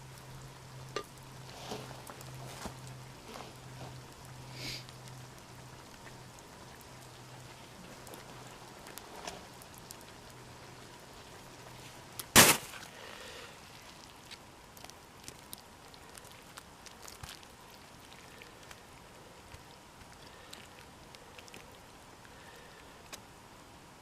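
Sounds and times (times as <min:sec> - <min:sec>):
stir fry sizzling in a pan: 0:00.0 - 0:12.8
sharp loud crack: 0:12.3 - 0:12.8.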